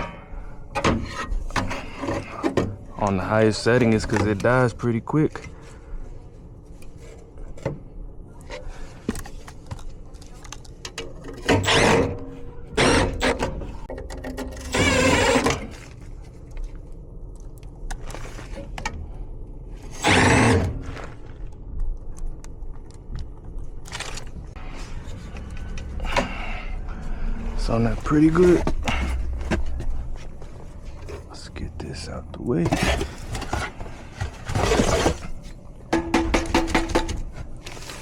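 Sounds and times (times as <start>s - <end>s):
faint steady hum: 0.0s - 38.0s
metal parts scraping and clattering: 19.9s - 21.2s, 32.5s - 38.0s.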